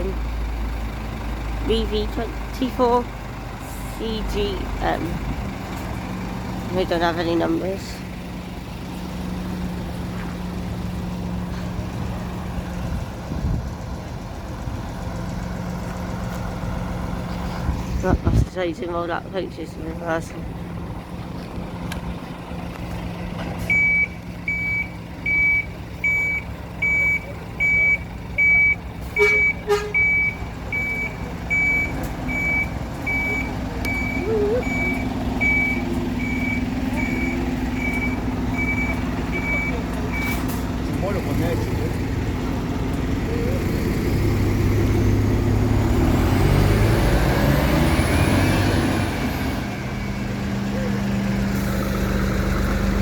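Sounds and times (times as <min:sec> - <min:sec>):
diesel engine running: 0:00.0 - 0:53.0
reversing alarm beeping: 0:23.7 - 0:40.4.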